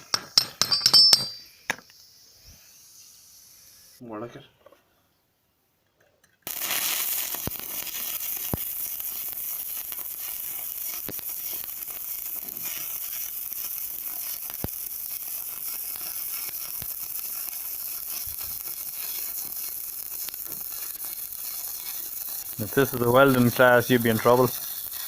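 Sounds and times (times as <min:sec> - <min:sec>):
sharp pops: 0:06.4 - 0:25.0
welding arc crackling sizzle: 0:06.4 - 0:25.0.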